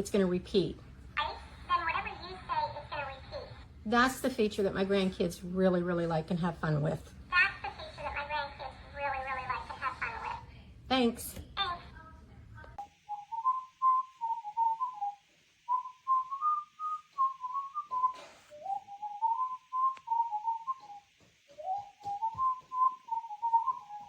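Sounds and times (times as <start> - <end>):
faint electronic hiss: 7.1 - 24.0
toy bird whistled tune: 21.6 - 24.0.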